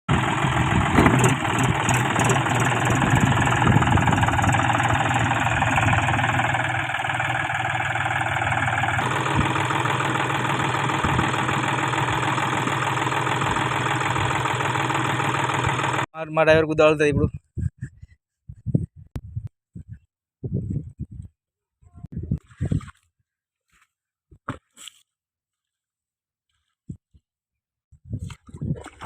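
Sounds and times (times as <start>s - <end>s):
tractor diesel engine running: 0.1s - 16.1s.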